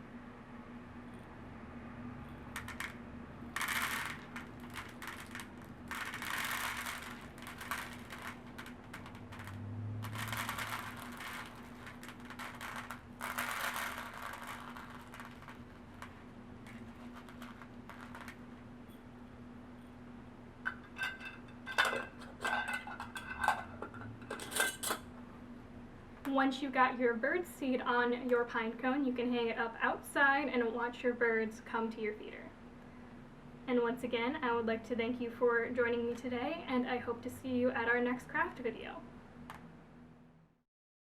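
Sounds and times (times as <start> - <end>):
bird seed rustling and rattling: 3.6 - 18.5.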